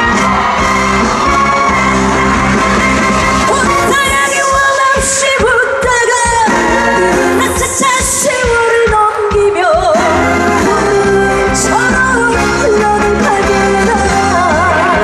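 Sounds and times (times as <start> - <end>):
band playing: 0.0 - 15.0
woman singing with vibrato: 3.4 - 15.0.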